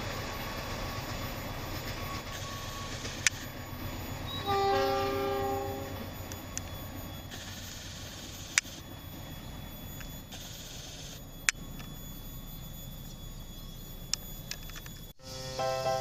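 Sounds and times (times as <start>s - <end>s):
train wheels rumbling on rail: 0.0s - 9.7s.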